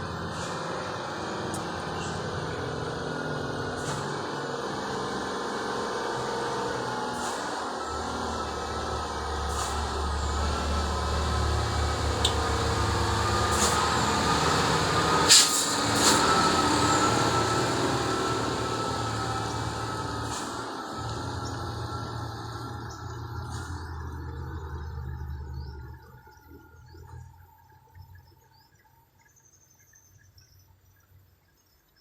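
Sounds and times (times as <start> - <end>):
diesel truck engine droning: 0.0 - 28.2
sharp hiss-like burst: 15.2 - 16.3.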